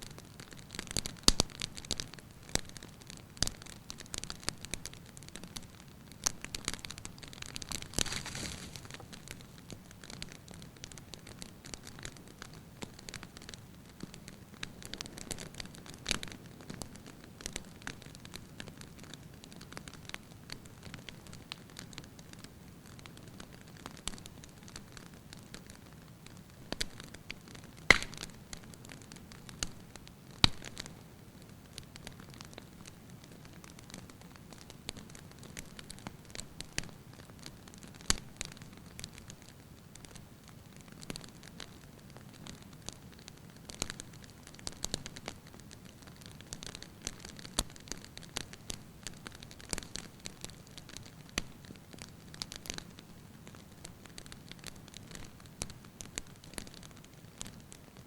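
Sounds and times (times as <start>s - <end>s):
sharp fire pops: 0.0s - 21.9s, 26.7s - 31.0s
fire crackling: 0.0s - 58.0s
low hiss: 0.0s - 58.0s.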